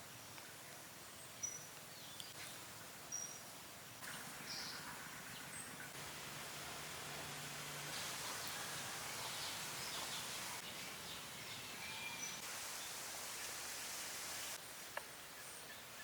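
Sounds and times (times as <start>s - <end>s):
bird chirping: 0.2s - 6.0s, 8.0s - 13.6s.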